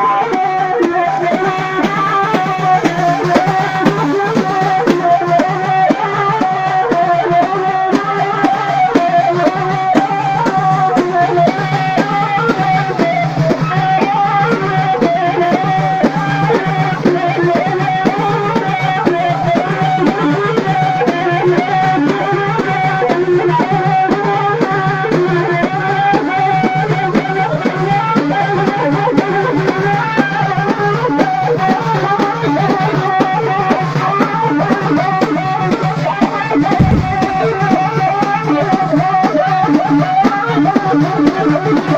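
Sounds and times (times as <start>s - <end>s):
steady drumming: 36.5s - 39.0s.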